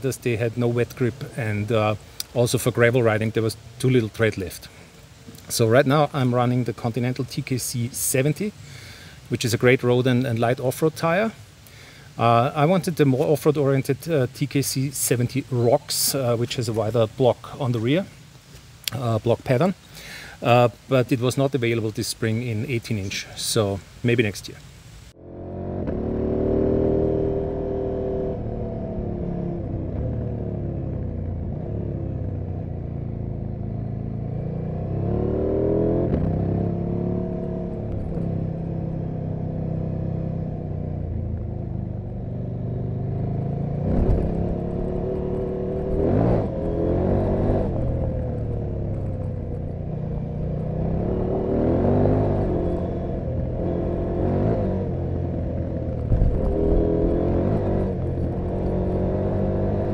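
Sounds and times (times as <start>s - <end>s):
motorcycle engine and exhaust revving: 25.1s - 59.9s.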